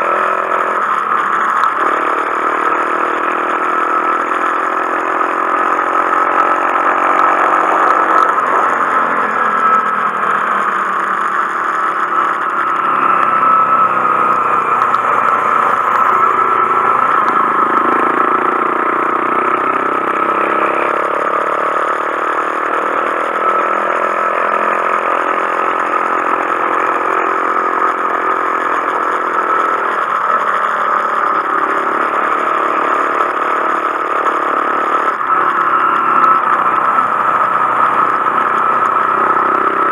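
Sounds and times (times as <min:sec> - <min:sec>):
motorcycle engine revving: 0:00.0 - 0:28.8, 0:30.7 - 0:39.9
steady high hum: 0:13.1 - 0:18.2, 0:36.4 - 0:39.7.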